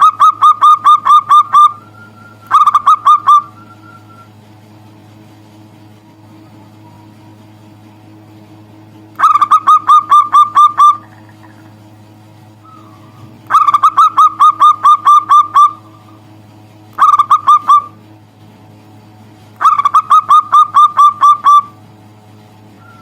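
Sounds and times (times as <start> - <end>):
dove cooing: 0.0 - 4.3, 9.2 - 11.8, 12.6 - 16.2, 17.0 - 18.0, 19.6 - 21.8
steady low hum: 0.0 - 23.0.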